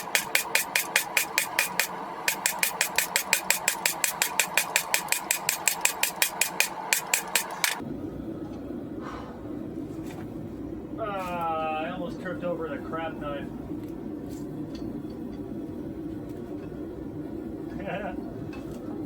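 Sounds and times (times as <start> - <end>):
hammer blows on hot metal: 0.0 - 7.8.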